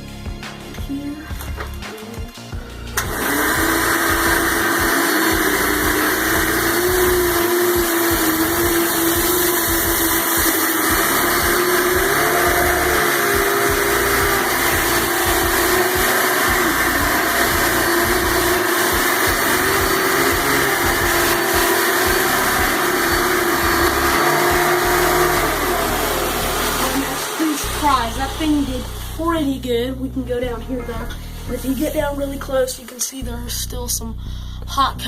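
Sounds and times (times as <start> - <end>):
vacuum cleaner running on carpet: 3.0 - 29.1.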